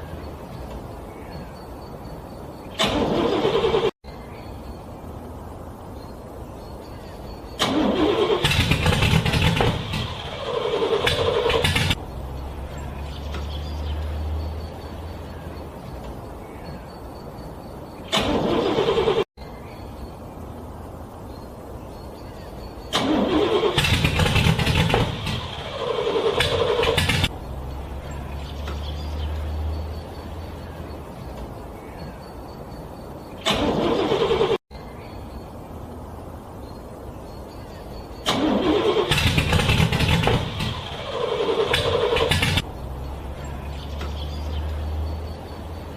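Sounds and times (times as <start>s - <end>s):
car engine cranking: 2.7s - 4.0s, 7.5s - 16.1s, 18.0s - 19.3s, 22.8s - 30.7s, 33.4s - 34.6s, 38.2s - 45.9s.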